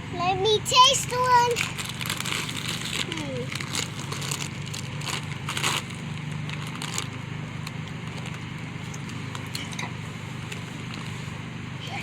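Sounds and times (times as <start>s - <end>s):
steady low hum: 0.0s - 12.0s
crunching tortilla chips: 1.5s - 9.6s.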